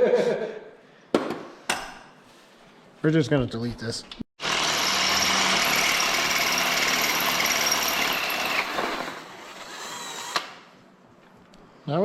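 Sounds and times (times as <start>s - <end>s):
power drill drilling into steel: 4.4s - 10.6s.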